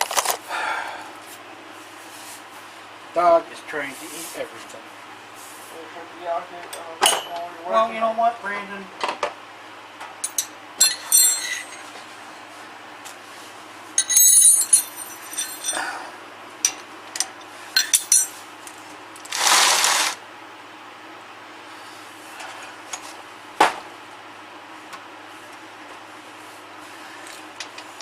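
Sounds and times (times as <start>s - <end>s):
metal tools clinking: 10.2s - 12.2s, 14.0s - 16.0s, 16.7s - 18.4s.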